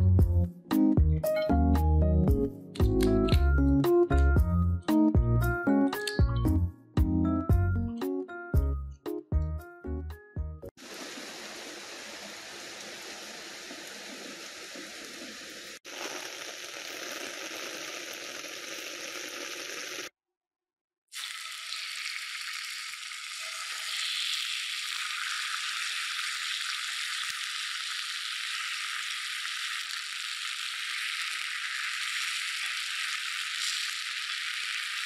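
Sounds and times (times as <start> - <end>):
steady rain falling: 10.8 - 19.8
chicken sizzling in hot oil: 10.8 - 20.1, 21.1 - 35.0.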